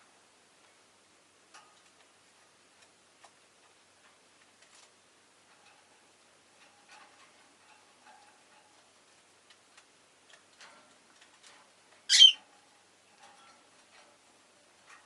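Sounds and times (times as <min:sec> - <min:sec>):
lovebird squawk: 0:12.1 - 0:12.4
soft short chirps: 0:12.1 - 0:12.4.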